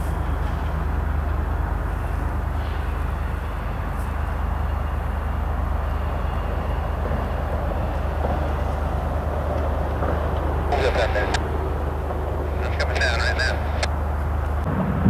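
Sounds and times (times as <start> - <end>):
freight train rolling past: 0.0 - 12.6, 13.4 - 15.0
diesel locomotive engines throbbing: 0.0 - 15.0.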